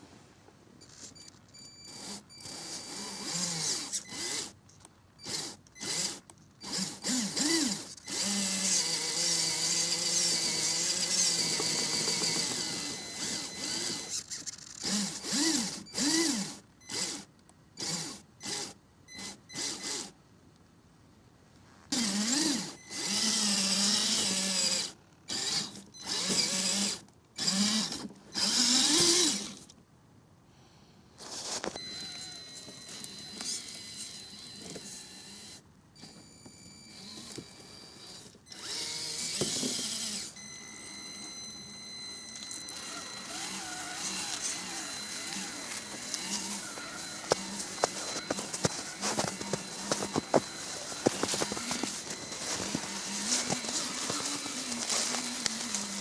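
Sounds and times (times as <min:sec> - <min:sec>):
electric motor whining: 0:01.8 - 0:04.6, 0:05.2 - 0:18.7, 0:21.9 - 0:29.6, 0:36.9 - 0:40.4, 0:42.3 - 0:56.0.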